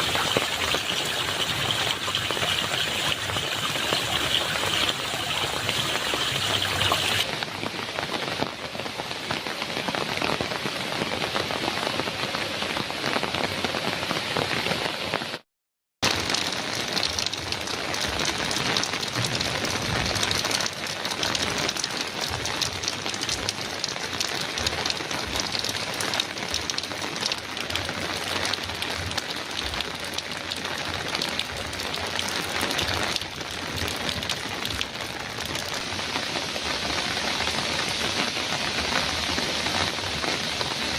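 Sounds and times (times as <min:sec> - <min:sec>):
heavy rain on a metal roof: 0:00.0 - 0:15.4, 0:16.0 - 0:40.9.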